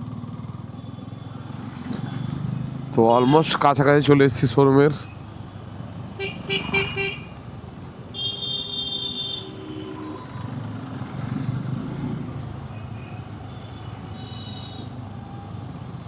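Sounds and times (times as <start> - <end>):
traffic engine rumble: 0.0 - 16.0
long horn blast: 6.2 - 7.3, 8.2 - 10.5
short horn beeps: 6.2 - 7.4, 8.2 - 10.4, 13.5 - 14.9.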